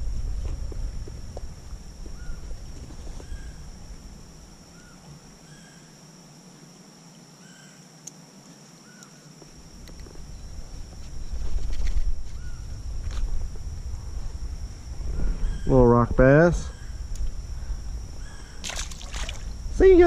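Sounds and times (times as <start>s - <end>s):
low rumble: 0.0s - 4.4s, 10.2s - 20.0s.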